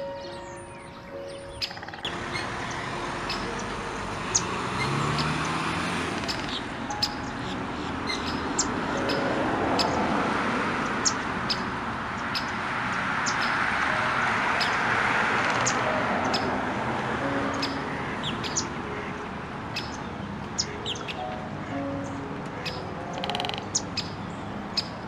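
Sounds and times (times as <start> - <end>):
small birds chirping: 0.0 - 10.1, 10.9 - 13.8, 17.5 - 19.1, 19.7 - 25.0.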